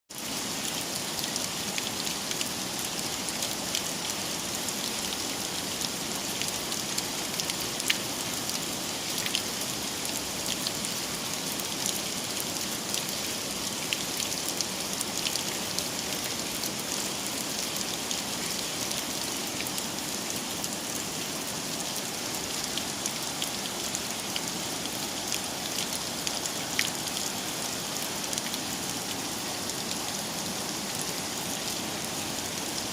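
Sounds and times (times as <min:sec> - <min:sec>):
heavy rain falling: 0:00.2 - 0:32.9.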